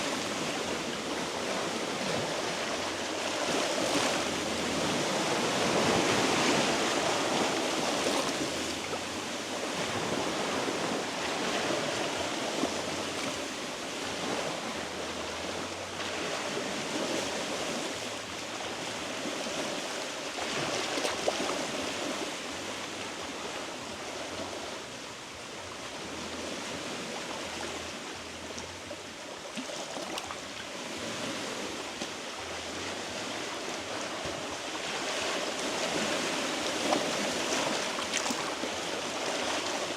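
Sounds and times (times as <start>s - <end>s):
sea waves washing against rocks: 0.0s - 24.9s, 29.8s - 39.9s.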